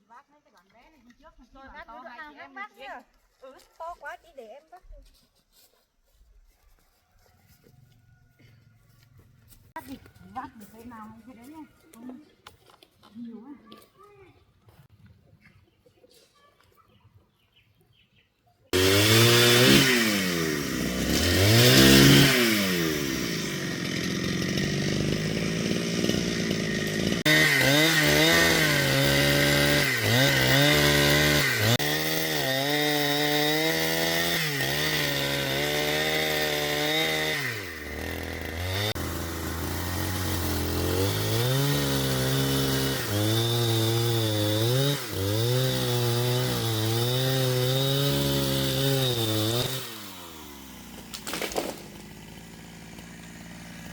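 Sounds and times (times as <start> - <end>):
chainsaw cutting wood: 18.7 - 53.9.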